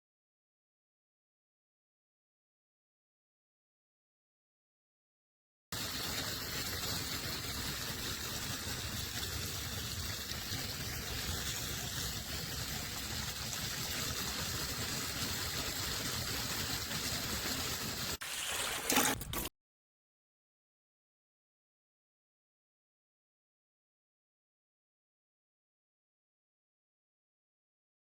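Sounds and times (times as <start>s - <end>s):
water running from drain: 5.8s - 19.1s.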